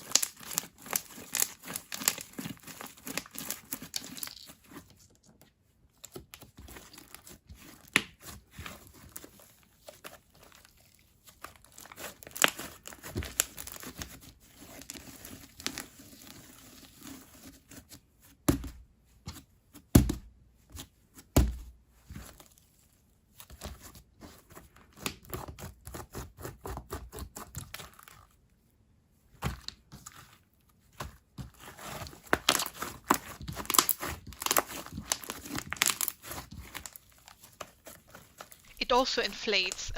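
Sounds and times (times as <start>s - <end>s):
slime stretched and squeezed: 0.0s - 4.8s, 11.5s - 17.5s, 31.6s - 38.6s.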